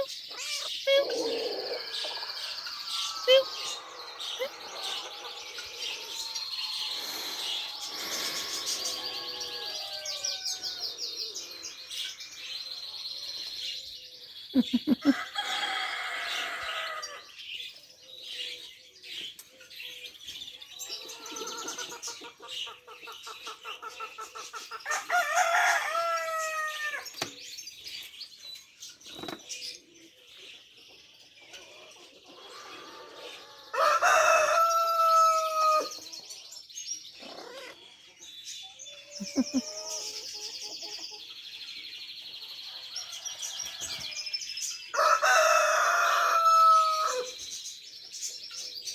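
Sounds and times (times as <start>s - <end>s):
small birds chirping: 0.0s - 48.9s
rooster crowing: 1.1s - 11.0s, 15.0s - 17.2s, 24.9s - 27.0s, 32.9s - 36.0s, 44.9s - 47.3s.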